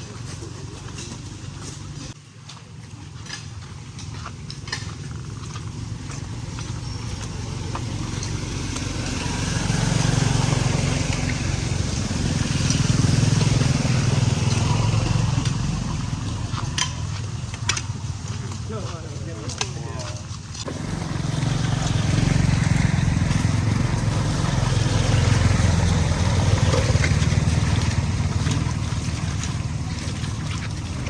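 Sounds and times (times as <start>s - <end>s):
vehicle engine passing: 5.1s - 19.5s, 20.6s - 31.0s.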